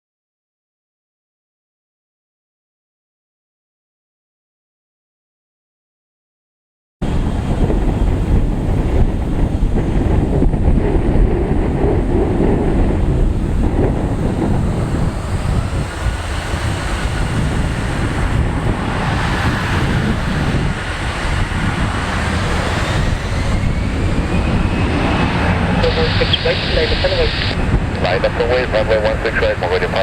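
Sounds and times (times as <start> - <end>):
jet aircraft rumble: 7.0 - 30.0
wind buffeting microphone: 7.0 - 30.0
faint rising whine: 13.9 - 30.0.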